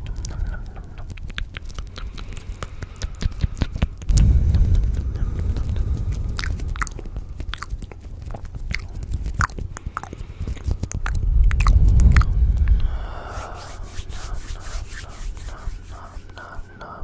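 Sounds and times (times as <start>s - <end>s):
chewing and crunching: 0.0s - 4.2s, 5.9s - 12.7s
low crackling rumble: 0.0s - 17.0s.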